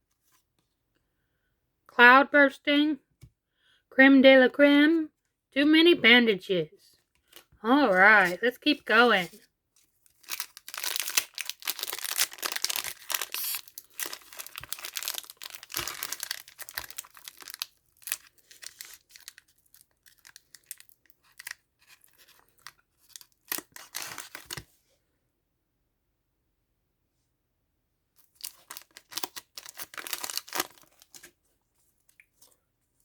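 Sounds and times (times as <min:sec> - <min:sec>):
wrapper crinkling and tearing: 0:10.0 - 0:24.6, 0:28.2 - 0:31.3.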